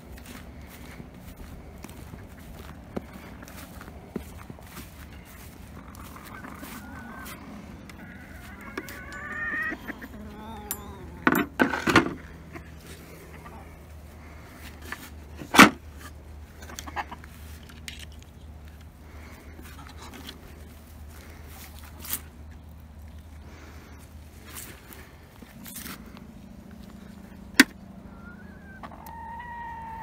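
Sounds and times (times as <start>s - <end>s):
chickens clucking: 0.2s - 11.4s, 16.3s - 17.6s, 27.0s - 30.0s.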